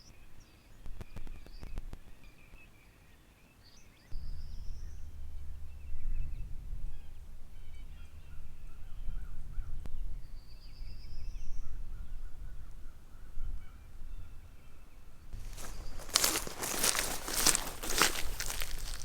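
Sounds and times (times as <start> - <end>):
wind rumble on microphone: 4.2 - 19.0
distant birds calling: 10.4 - 19.0.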